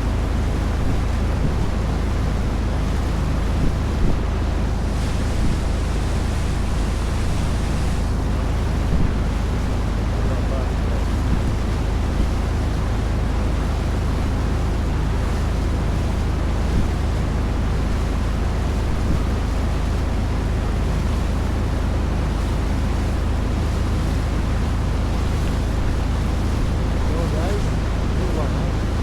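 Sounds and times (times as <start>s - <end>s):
boat engine humming: 0.0s - 29.0s
water rushing: 0.0s - 29.0s
wind rushing: 3.6s - 9.3s.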